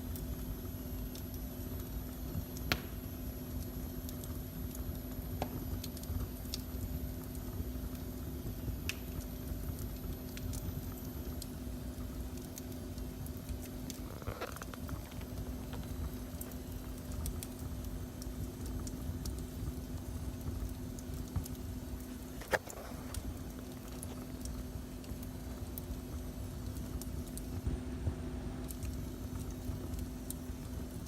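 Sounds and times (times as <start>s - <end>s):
steady hum: 0.0s - 31.0s
wood fire crackling: 0.0s - 31.0s
sharp pop of fire: 2.6s - 3.1s.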